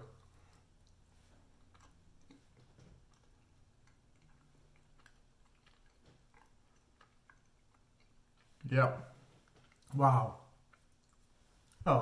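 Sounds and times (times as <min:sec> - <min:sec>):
mouth clicks from chewing: 0:01.6 - 0:08.7.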